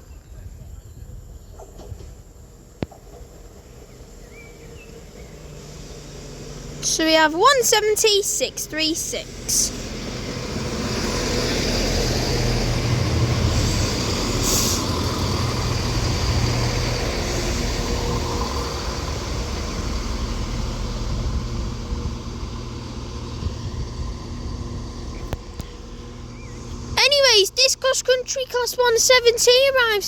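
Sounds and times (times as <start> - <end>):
diesel train engines running: 0.0 - 30.0
train rumbling over rails: 0.0 - 30.0
air hiss: 13.2 - 16.8.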